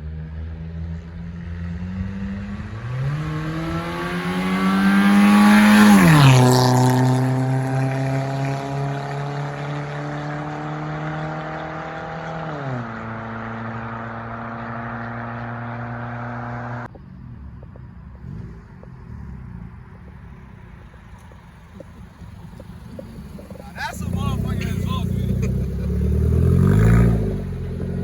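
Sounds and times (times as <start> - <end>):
low engine rumble: 16.8 - 28.0
loud raspy car exhaust at high rpm: 21.8 - 28.0.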